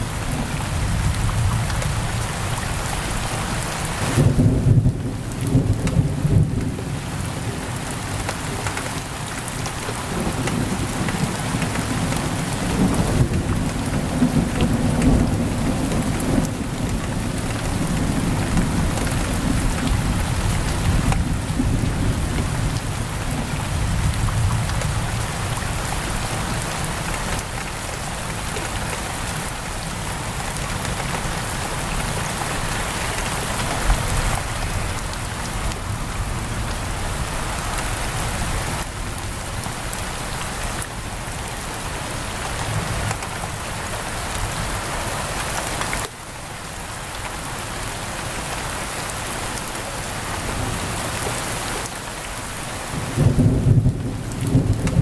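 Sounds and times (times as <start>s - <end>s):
heavy rain on window: 0.0s - 55.0s
rolling thunder rumble: 52.9s - 55.0s.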